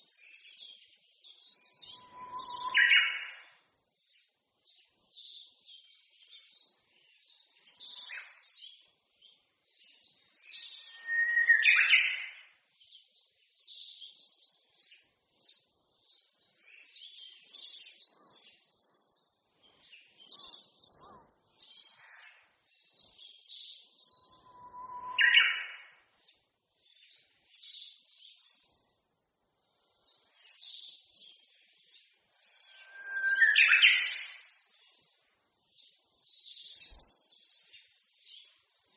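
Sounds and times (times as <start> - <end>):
songbirds twittering: 0.0 - 38.9
bird whistled song: 0.2 - 3.6, 10.4 - 12.5, 23.2 - 26.4, 32.4 - 34.8.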